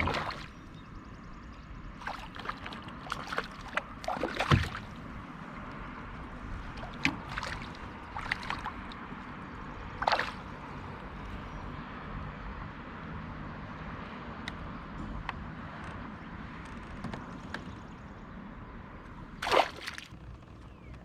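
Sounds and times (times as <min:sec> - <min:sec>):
sharp splashes and knocks: 0:00.0 - 0:00.7, 0:02.0 - 0:05.4, 0:06.2 - 0:10.7, 0:19.4 - 0:20.2
water sloshing against kayak hull: 0:00.0 - 0:00.8, 0:01.8 - 0:11.0, 0:19.4 - 0:20.6.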